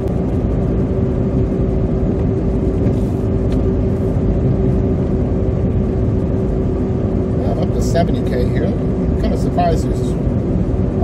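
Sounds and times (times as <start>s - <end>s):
car engine and tyre rumble: 0.0s - 11.0s
steady hum: 0.0s - 11.0s.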